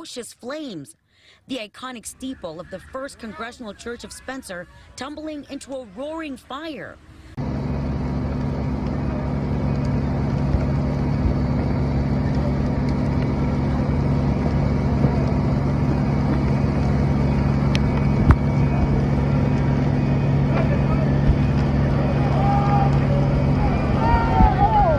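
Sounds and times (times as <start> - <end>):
engine running steadily: 7.3 - 24.9
sharp cracks: 8.0 - 24.9.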